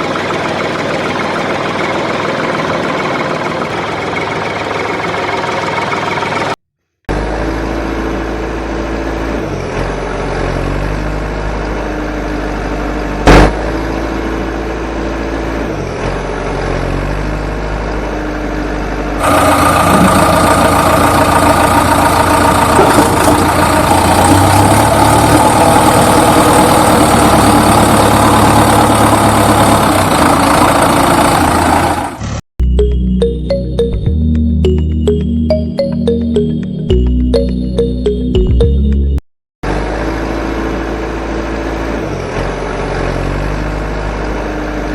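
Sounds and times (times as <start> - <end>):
engine running: 0.0 - 44.9
sharp knock: 13.3 - 13.6.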